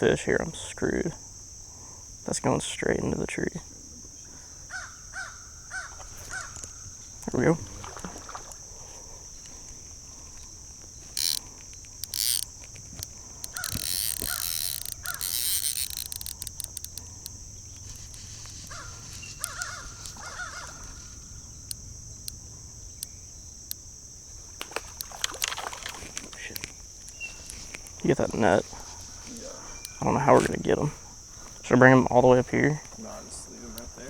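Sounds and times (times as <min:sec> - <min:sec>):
high insect drone: 0:00.0 - 0:34.0
crow calls: 0:18.6 - 0:21.3.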